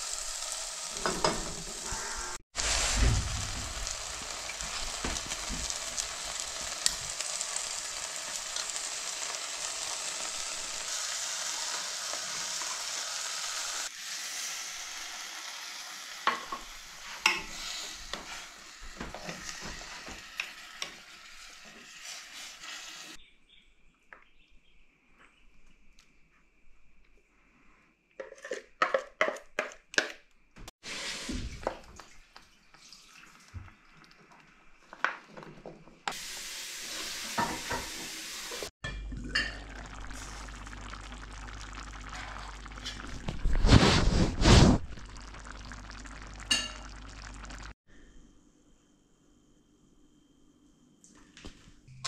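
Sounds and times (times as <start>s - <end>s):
food sizzling in a pan: 0.0s - 23.2s, 30.8s - 32.2s, 36.1s - 38.7s, 39.3s - 47.8s.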